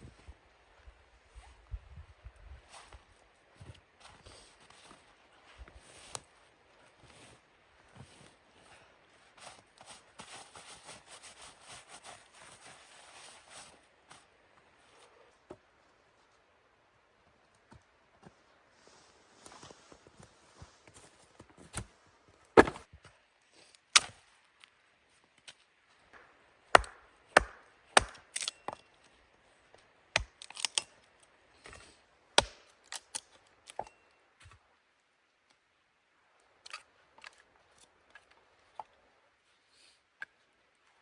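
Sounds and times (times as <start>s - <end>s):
wood chopping knocks: 22.6s - 22.8s, 26.2s - 28.2s.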